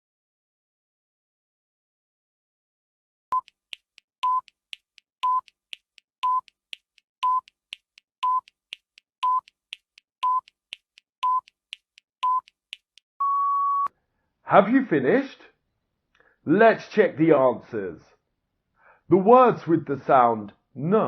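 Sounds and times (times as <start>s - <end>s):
short timer beeps: 4.2s - 4.6s, 7.2s - 7.6s.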